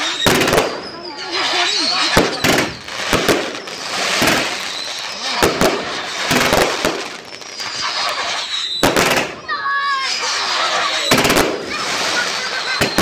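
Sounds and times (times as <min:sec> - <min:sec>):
fireworks banging and crackling: 0:00.0 - 0:13.0
faint high whistle: 0:07.2 - 0:10.0.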